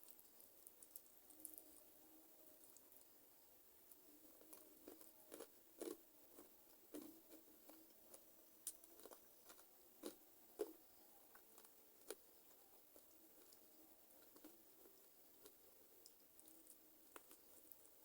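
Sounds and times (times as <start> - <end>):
crunchy chewing and biting: 4.3 - 18.0.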